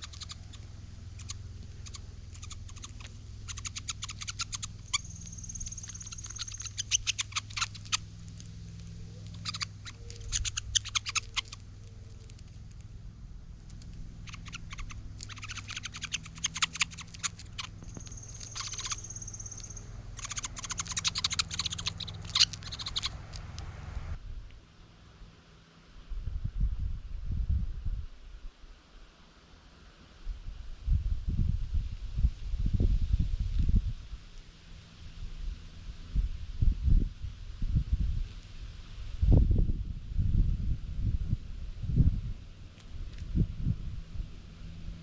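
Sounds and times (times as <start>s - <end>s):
woodpecker rapid high clicks: 0.0s - 12.9s, 13.6s - 23.7s.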